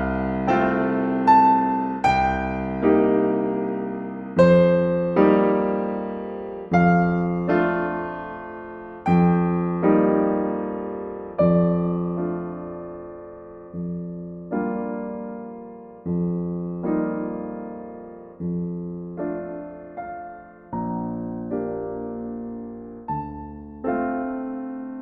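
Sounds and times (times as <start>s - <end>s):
slow solo piano: 0.0s - 25.0s.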